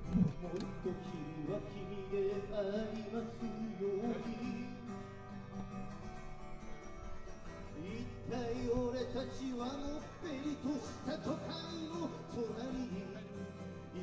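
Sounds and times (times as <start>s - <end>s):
man singing: 0.0s - 5.5s, 7.6s - 14.0s
acoustic guitar strumming: 0.0s - 14.0s.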